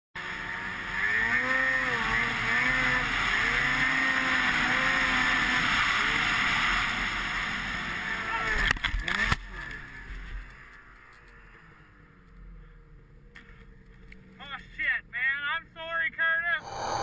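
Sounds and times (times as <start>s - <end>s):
snowmobile engine revving: 0.2s - 12.0s
steady rushing noise: 16.5s - 17.0s.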